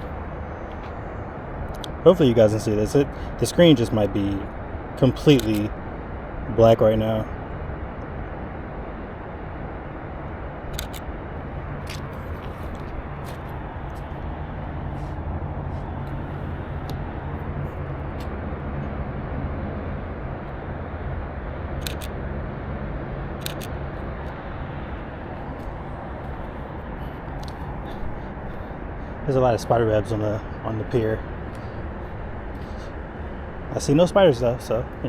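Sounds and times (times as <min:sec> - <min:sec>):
low outdoor rumble: 0:00.0 - 0:35.0
camera shutter clicking: 0:05.4 - 0:05.7, 0:10.7 - 0:11.1, 0:21.8 - 0:22.2, 0:23.4 - 0:23.8.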